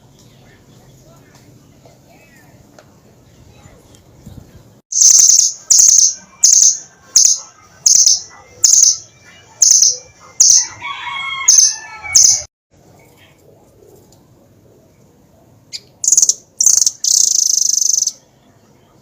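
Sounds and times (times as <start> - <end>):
bird sharp high-pitched calls: 4.9 - 10.8, 15.7 - 18.3.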